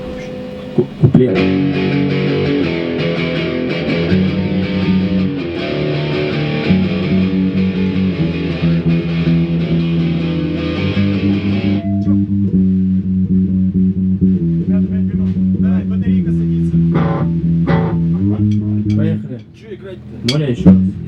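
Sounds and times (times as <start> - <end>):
guitar strumming chords: 0.0 - 21.0.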